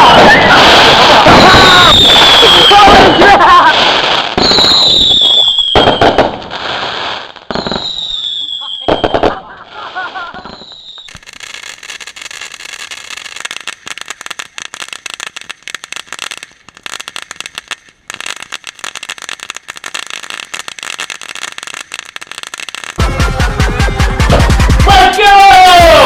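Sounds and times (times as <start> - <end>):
firework crackling: 0.0 - 26.0
loud music: 23.0 - 25.9.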